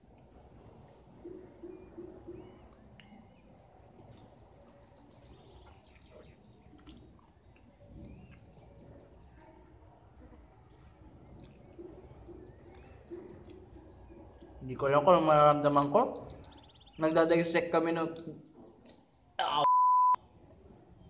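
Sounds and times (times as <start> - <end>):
faint bird chirps: 0.0 - 14.7
low background noise: 0.0 - 21.0.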